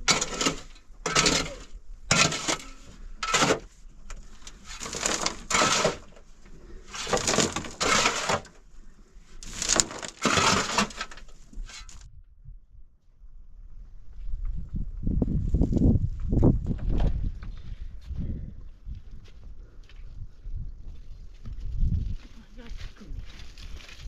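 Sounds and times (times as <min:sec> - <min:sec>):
crunching strokes: 0:00.0 - 0:08.6, 0:09.4 - 0:12.1.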